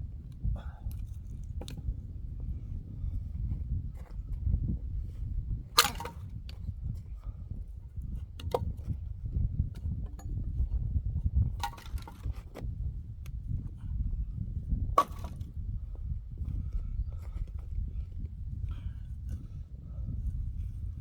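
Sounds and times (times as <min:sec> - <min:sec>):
steady low rumble: 0:00.0 - 0:21.0
axe splitting firewood: 0:05.7 - 0:06.5, 0:11.5 - 0:12.6, 0:15.0 - 0:15.5.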